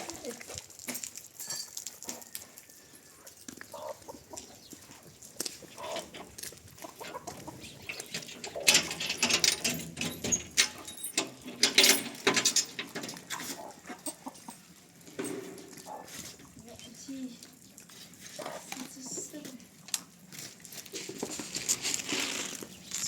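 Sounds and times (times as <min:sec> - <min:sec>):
chickens clucking: 0:02.1 - 0:09.0, 0:13.0 - 0:14.7, 0:15.3 - 0:16.2, 0:18.4 - 0:19.2
sharp clattering and scratching: 0:04.3 - 0:16.9, 0:20.3 - 0:23.0.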